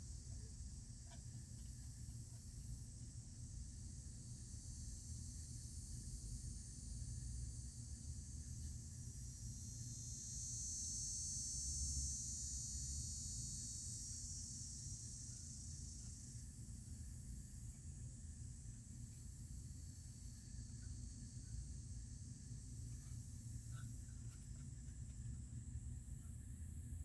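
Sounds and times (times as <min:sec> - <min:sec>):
high insect chorus: 0:00.0 - 0:27.0.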